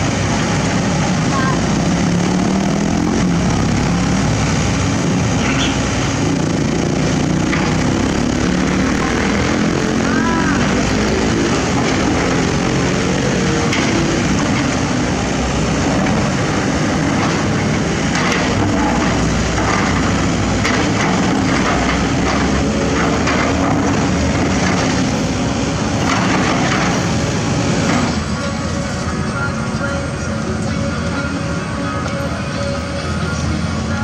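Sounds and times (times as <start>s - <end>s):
excavator diesel engine running: 0.0s - 34.0s
metal knocking on metal: 7.4s - 9.8s, 10.6s - 15.0s, 15.7s - 25.2s, 26.0s - 28.3s.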